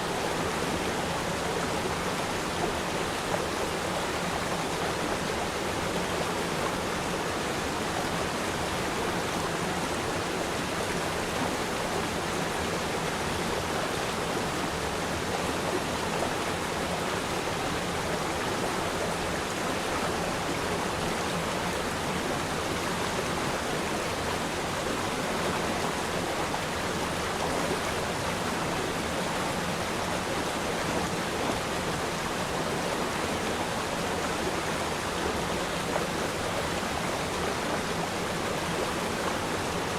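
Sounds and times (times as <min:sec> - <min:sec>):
shallow stream flowing: 0:00.0 - 0:39.9.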